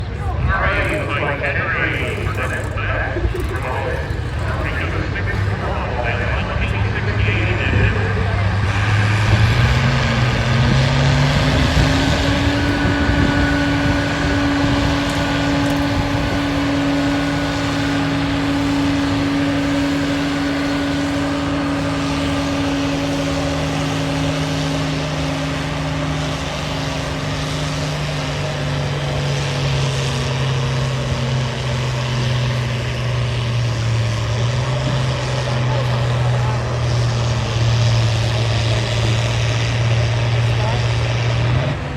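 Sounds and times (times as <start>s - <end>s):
tractor engine under load: 0.0s - 41.9s.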